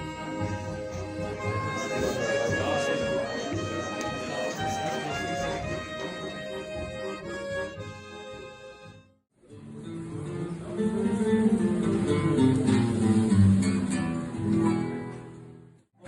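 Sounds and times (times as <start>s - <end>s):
sustained musical notes: 0.0s - 15.5s
acoustic guitar plucked and strummed: 9.4s - 15.8s.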